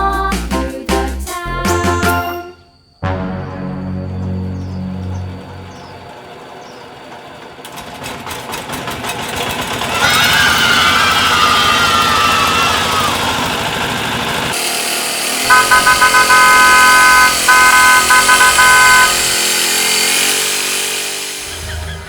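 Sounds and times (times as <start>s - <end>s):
vehicle horn honking: 2.5s - 6.2s, 15.4s - 19.3s.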